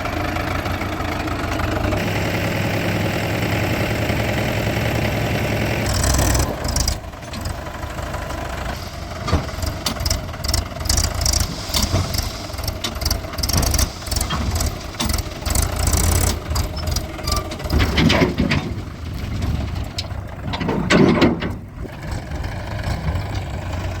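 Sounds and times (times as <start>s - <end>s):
diesel engine idling: 0.0s - 24.0s
sharp knocks and clanks: 9.2s - 21.7s.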